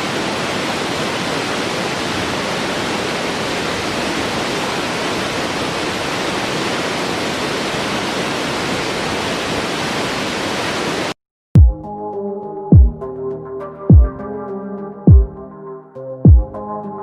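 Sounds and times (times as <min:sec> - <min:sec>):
rushing water: 0:00.0 - 0:11.2.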